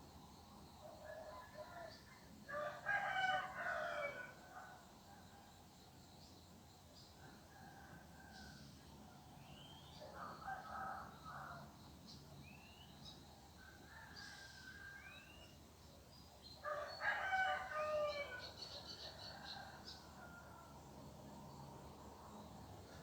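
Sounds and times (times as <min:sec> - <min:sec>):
rooster crowing: 0:16.6 - 0:18.5.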